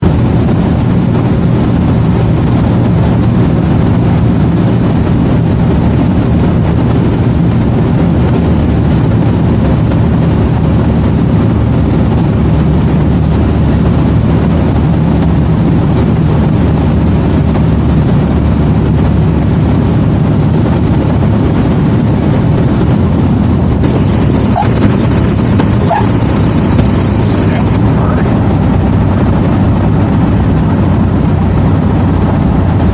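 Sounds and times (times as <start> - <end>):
light aircraft engine drone: 0.0 - 32.9.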